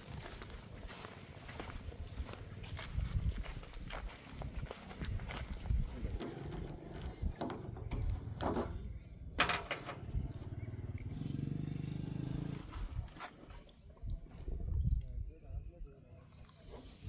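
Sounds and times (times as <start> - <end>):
sharp knocks and clatters: 6.2 - 10.2.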